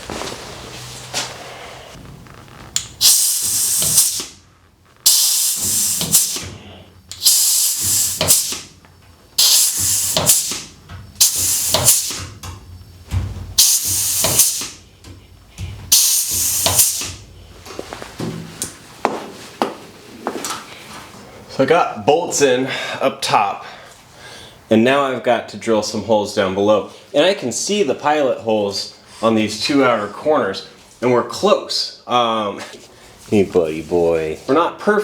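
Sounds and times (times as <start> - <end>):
pneumatic air tool hissing: 2.8 - 4.4, 5.0 - 8.8, 9.4 - 12.4, 13.6 - 14.8, 15.9 - 17.3.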